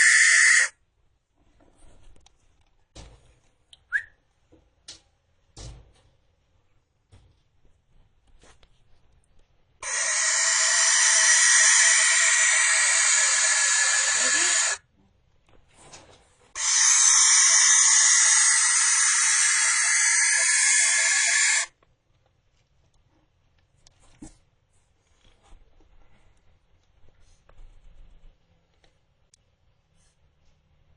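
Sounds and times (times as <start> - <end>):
barn owl screeching: 0.0 - 0.7, 9.8 - 14.8, 16.6 - 21.7.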